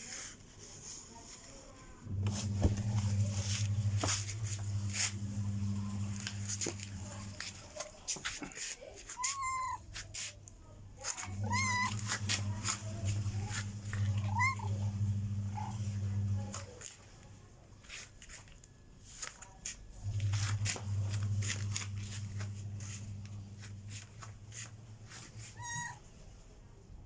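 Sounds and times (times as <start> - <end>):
low steady hum: 2.0 - 7.7, 10.8 - 16.8
cat meowing: 9.2 - 9.9, 11.1 - 12.6, 13.4 - 14.9, 25.4 - 26.1.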